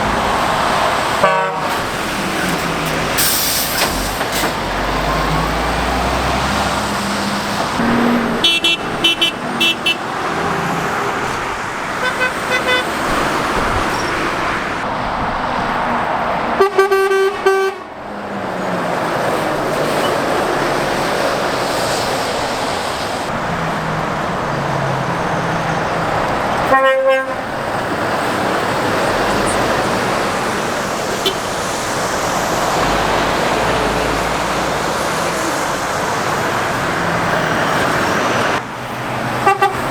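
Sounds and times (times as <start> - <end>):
traffic road noise: 0.0 - 39.9
vehicle horns tooting: 1.2 - 4.0, 7.8 - 10.6, 11.9 - 14.1, 16.6 - 18.0, 26.6 - 27.7, 29.4 - 31.8, 39.4 - 39.9.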